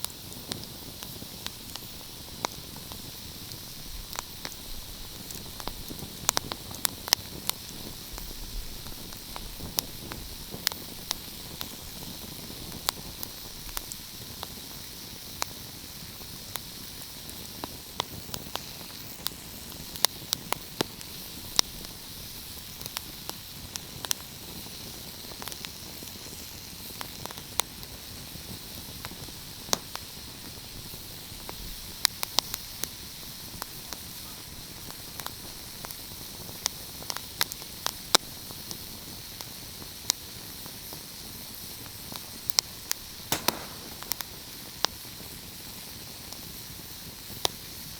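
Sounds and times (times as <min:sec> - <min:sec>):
fire crackling and popping: 0:00.0 - 0:33.6, 0:39.2 - 0:45.7
steady hiss: 0:40.7 - 0:44.7.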